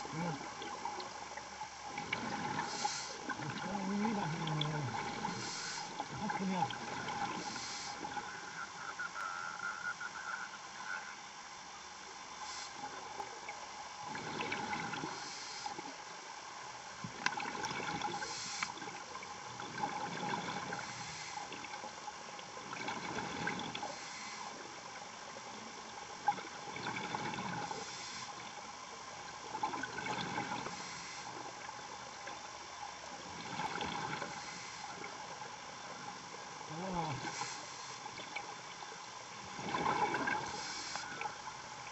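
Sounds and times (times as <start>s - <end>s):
gurgling exhaled bubbles: 0.0s - 9.0s, 14.0s - 16.0s, 17.1s - 21.9s, 22.5s - 28.7s, 29.4s - 31.7s, 33.1s - 41.9s
steady regulator hiss: 0.0s - 9.2s, 12.0s - 41.9s.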